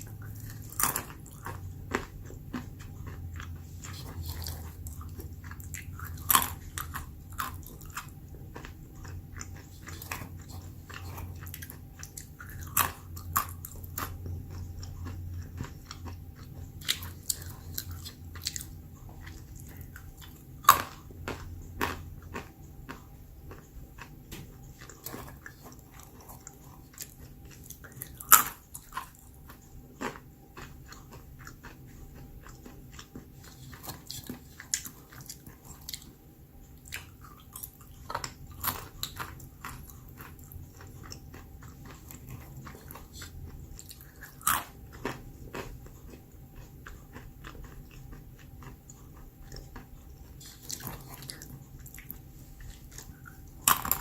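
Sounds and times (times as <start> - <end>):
person crunching almonds: 0.0 - 36.2, 36.8 - 54.0.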